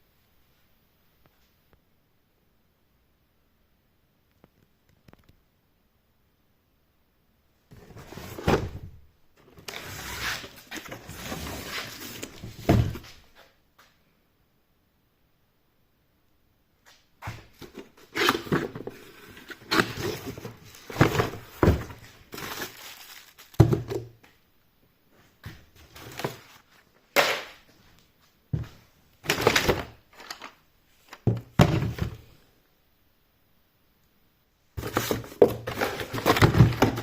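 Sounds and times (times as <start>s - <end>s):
box being handled with thunks: 7.7s - 9.0s, 12.2s - 13.2s, 19.6s - 22.7s, 23.5s - 24.1s, 31.2s - 32.3s, 34.8s - 37.0s
packaging rustling: 17.6s - 24.1s, 29.2s - 31.2s, 34.8s - 37.0s.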